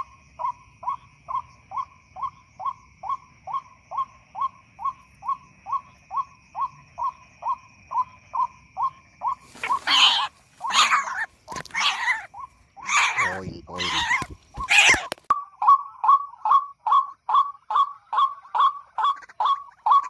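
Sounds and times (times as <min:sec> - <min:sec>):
harsh bird squawking: 0:09.4 - 0:15.2
bird hooting notes: 0:09.5 - 0:15.2.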